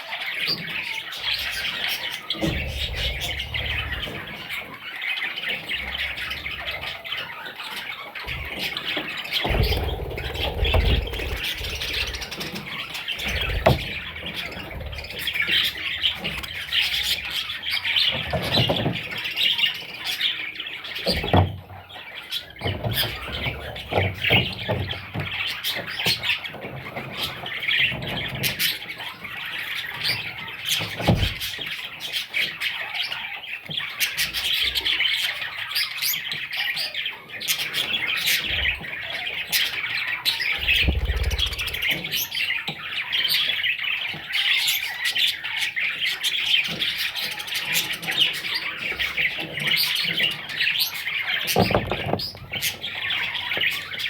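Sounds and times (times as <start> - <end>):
budgerigar chicks squawking and chirping: 0.0 - 54.0
low thumps: 9.4 - 12.6, 40.6 - 42.0.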